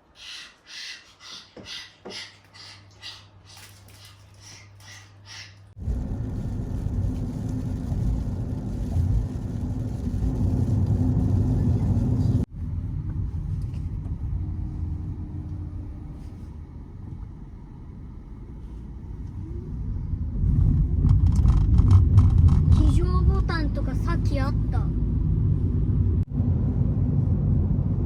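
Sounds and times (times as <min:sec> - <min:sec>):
car cabin road and engine rumble: 0:05.7 - 0:28.0.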